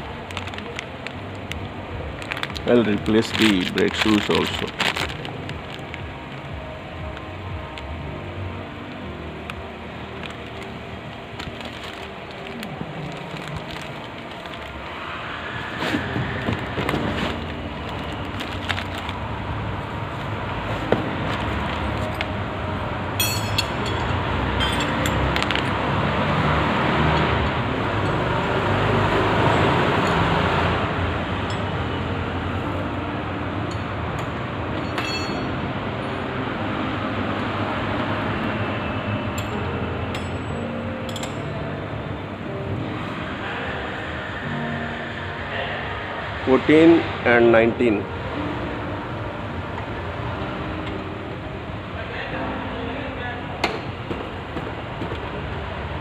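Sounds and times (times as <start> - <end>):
traffic rumble: 0.0 - 56.0
metallic clinks of tools: 23.2 - 25.3, 33.7 - 35.6.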